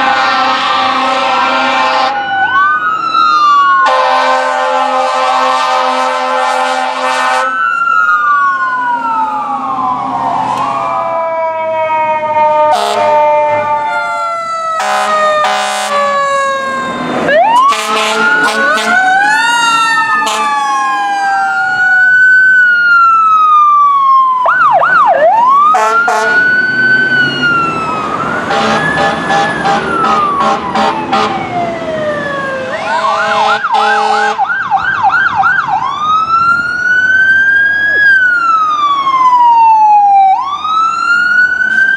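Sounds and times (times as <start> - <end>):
air horn blasts: 0.0 - 2.2, 3.8 - 7.6, 12.7 - 16.1, 17.6 - 20.7, 25.7 - 26.5, 28.5 - 31.4, 33.0 - 34.5
fire truck sirens wailing: 0.0 - 41.9.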